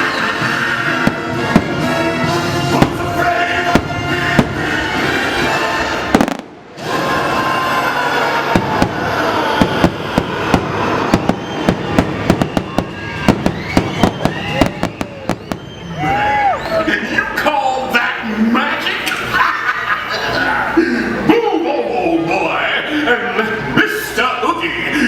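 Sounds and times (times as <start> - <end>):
loud music soundtrack: 0.0 - 14.6
fireworks bangs: 0.4 - 16.6.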